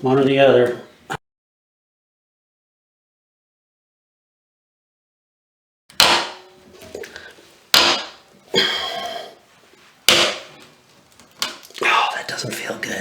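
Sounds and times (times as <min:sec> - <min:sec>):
sharp cracks of plastic breaking: 0:05.9 - 0:06.5, 0:07.7 - 0:08.3, 0:10.1 - 0:11.8.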